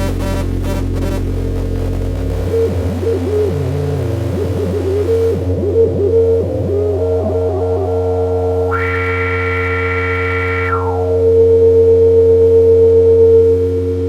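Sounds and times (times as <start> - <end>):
bright buzzy synth tone: 0.0 - 11.8
synthesizer droning low tones: 0.0 - 14.0
warbling synth tone swooping: 2.4 - 11.4
synthesizer hiss: 8.5 - 11.3.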